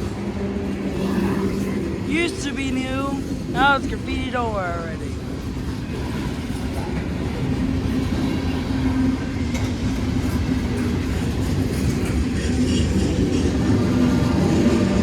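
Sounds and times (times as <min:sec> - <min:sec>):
freight train rolling past: 0:00.0 - 0:15.0.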